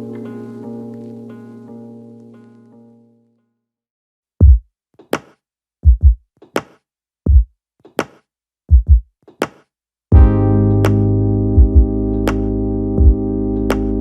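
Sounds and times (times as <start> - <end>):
drum machine beat: 4.4 - 6.7, 7.3 - 14.0.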